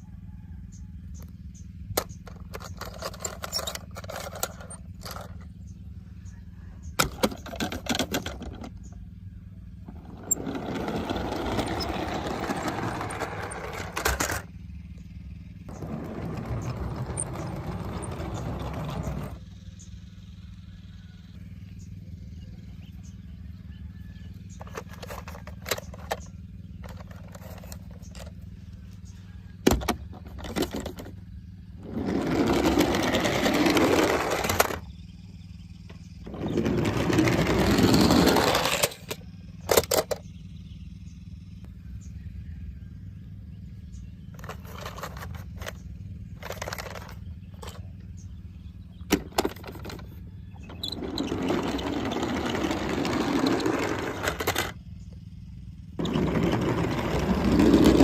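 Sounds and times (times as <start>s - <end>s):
toy cars whirring: 1.9s - 5.5s, 7.0s - 8.9s, 9.8s - 14.5s, 15.7s - 19.6s, 24.3s - 28.4s, 29.6s - 34.9s, 36.2s - 40.2s, 44.3s - 47.9s, 49.1s - 55.0s, 56.0s - 58.0s.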